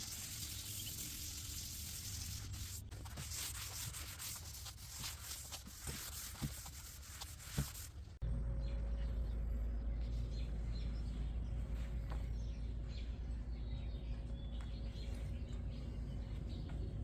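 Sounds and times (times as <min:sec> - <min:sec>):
faint hum: 0:08.0 - 0:17.0.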